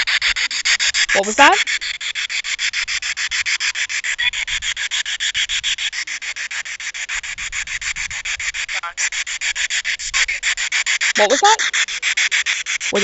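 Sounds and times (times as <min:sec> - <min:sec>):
radio static pulsing: 0:01.1 - 0:01.6, 0:11.2 - 0:11.6.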